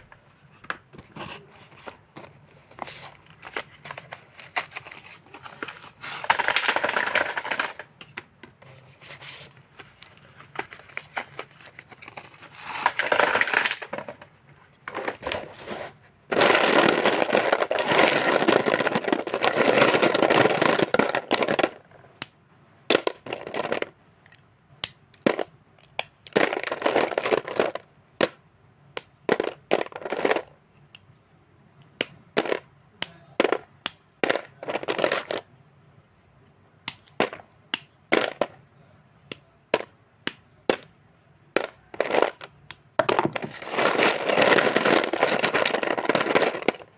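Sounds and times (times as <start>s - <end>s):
slate pencils crunching: 1.2s - 8.1s, 9.0s - 21.9s, 41.6s - 46.9s.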